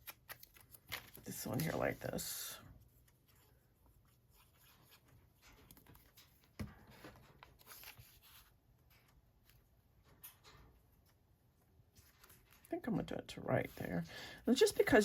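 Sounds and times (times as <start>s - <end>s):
paper rustling and ticking: 0.0s - 2.3s.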